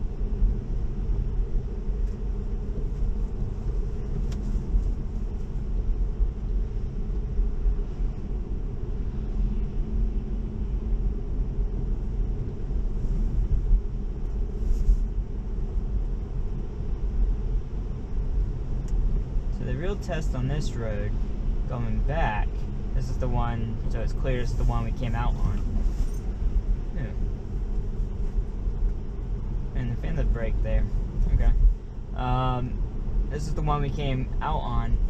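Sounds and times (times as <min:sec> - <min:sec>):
road and tyre rumble in car: 0:00.0 - 0:35.0.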